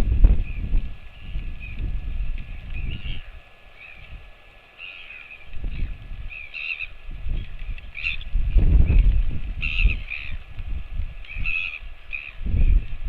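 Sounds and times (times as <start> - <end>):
crow cawing: 4.8 - 5.4, 6.4 - 7.0, 9.6 - 10.4, 11.3 - 12.4.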